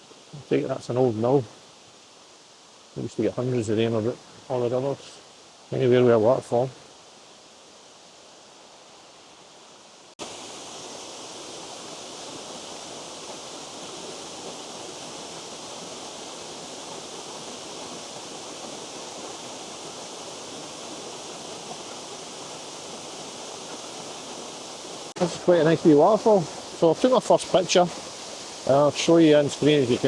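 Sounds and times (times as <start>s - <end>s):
small waterfall rushing: 0.0s - 30.0s.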